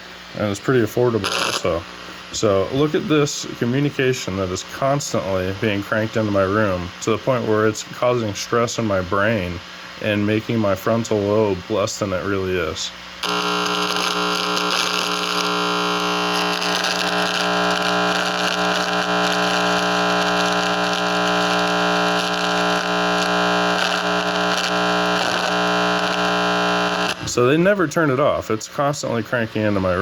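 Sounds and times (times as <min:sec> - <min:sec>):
static hiss: 0:00.0 - 0:30.0
electronic buzz with held tones: 0:01.2 - 0:02.5, 0:13.2 - 0:27.5.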